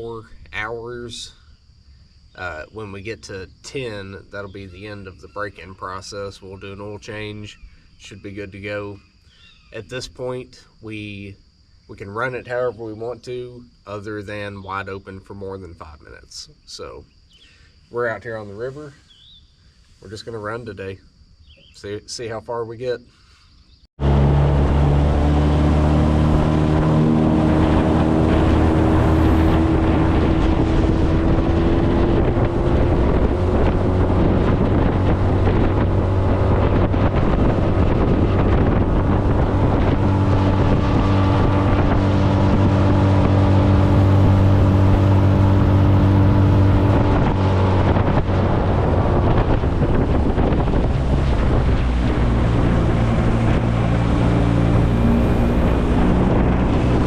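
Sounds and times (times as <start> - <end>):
outboard motor running: 24.0 - 57.0
wind buffeting microphone: 24.1 - 57.0.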